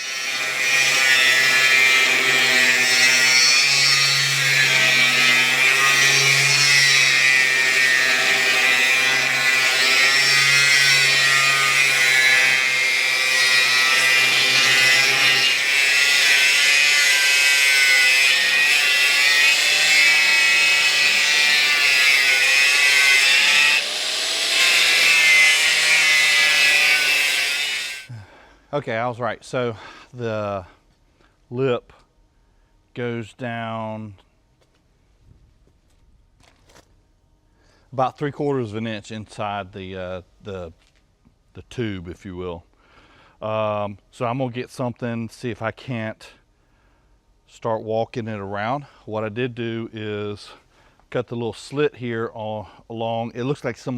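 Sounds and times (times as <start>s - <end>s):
cutoff wheel grinding metal: 0.0s - 28.1s.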